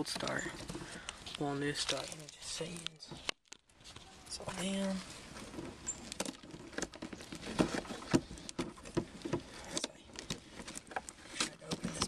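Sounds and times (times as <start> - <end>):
hands tapping and scratching cardboard box: 5.6 - 12.0.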